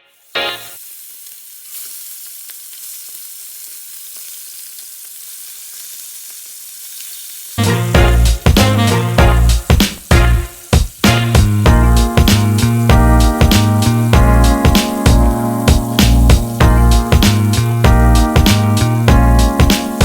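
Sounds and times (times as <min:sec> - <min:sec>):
background music: 0:00.0 - 0:00.8, 0:07.6 - 0:20.0
food sizzling in hot oil: 0:00.1 - 0:20.0.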